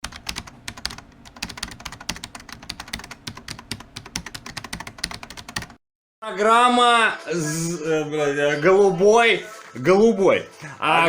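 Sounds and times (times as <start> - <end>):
rapid keyboard typing: 0.0 - 5.8.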